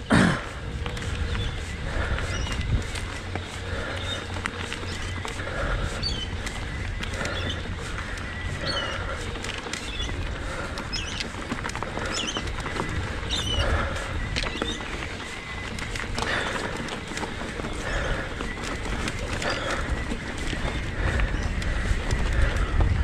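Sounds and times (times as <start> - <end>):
steady low rumble: 0.0 - 23.0
bird chirping: 0.7 - 21.9.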